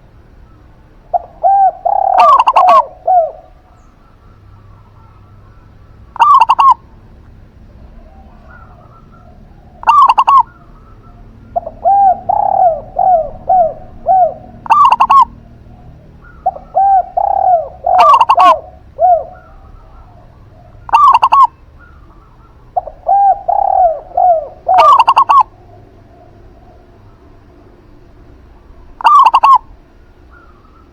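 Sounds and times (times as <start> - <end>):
doves cooing: 0.0 - 30.9
loud double-note bird call: 9.8 - 15.5, 16.2 - 20.1, 29.0 - 30.9.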